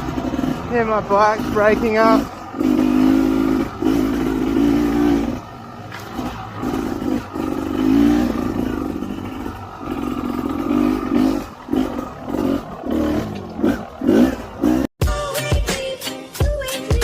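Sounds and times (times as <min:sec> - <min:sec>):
chassis clattering over rough ground: 0:00.0 - 0:14.9
dirt bike engine revving: 0:00.0 - 0:14.9
person speaking: 0:00.7 - 0:02.3.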